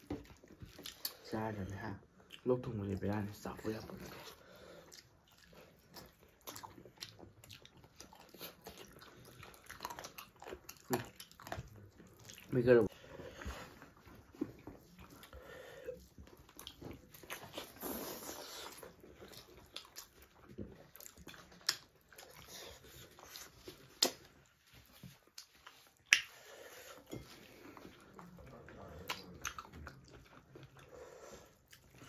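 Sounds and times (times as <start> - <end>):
people chewing chicken: 0.0 - 32.0
wet mouth smacks and crunches: 23.9 - 24.3, 25.3 - 26.3.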